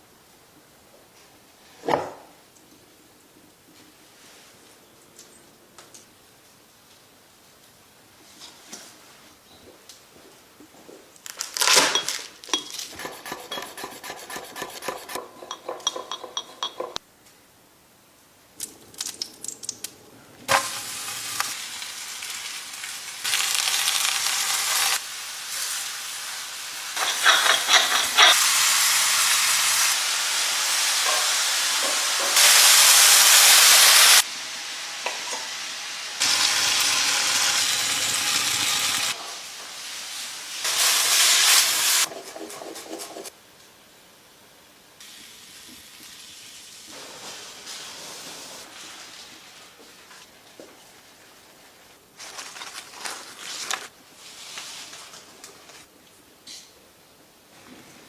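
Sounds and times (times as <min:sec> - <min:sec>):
utensils clinking and scraping: 0:11.9 - 0:17.0, 0:27.0 - 0:28.4
food sizzling in frying pan: 0:20.5 - 0:42.1.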